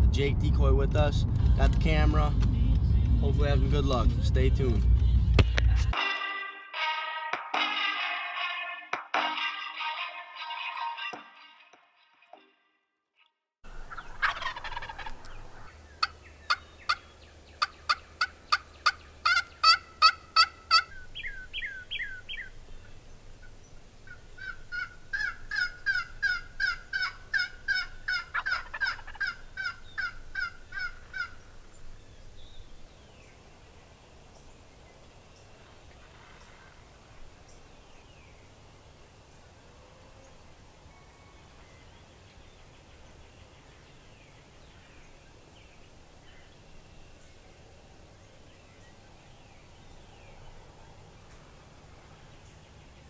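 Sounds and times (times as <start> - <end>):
turkey yelping: 13.8 - 22.5, 24.0 - 31.4.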